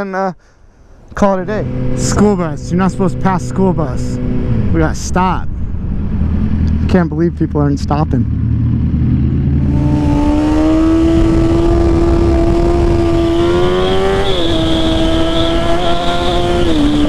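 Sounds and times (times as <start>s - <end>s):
wind rumble: 0.8s - 17.0s
motorcycle engine running: 5.7s - 17.0s.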